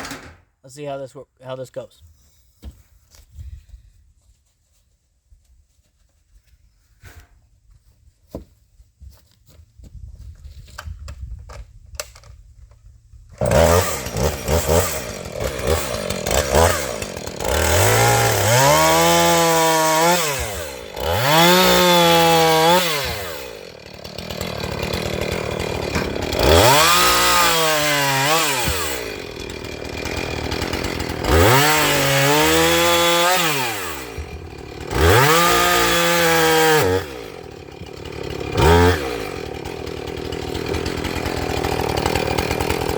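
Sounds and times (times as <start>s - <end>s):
chainsaw revving and cutting wood: 13.3s - 42.9s.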